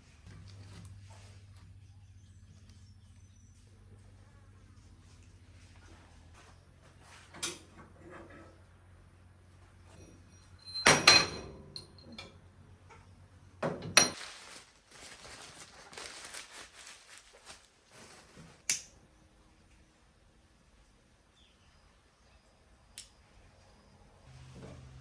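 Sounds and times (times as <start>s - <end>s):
kitchenware ringing clink: 10.0s - 12.4s
soft hissing and rustling: 14.2s - 18.7s.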